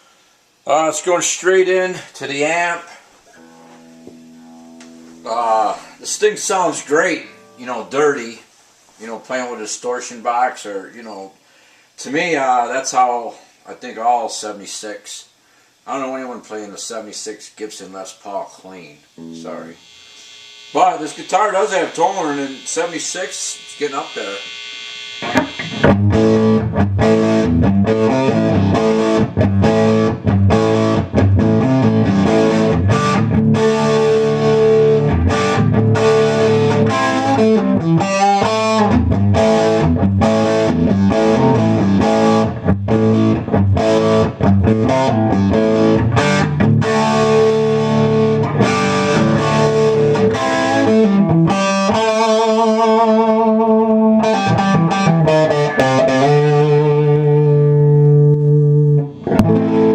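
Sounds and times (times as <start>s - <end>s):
distorted electric guitar: 3.3s - 8.1s, 19.1s - 59.9s.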